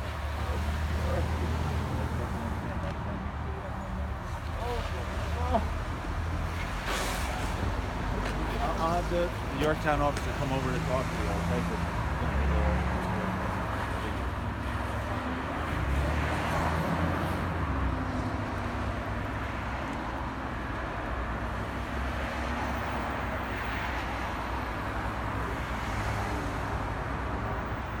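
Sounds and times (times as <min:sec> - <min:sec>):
road noise hiss: 0:00.0 - 0:15.1
vehicles passing: 0:00.0 - 0:28.0.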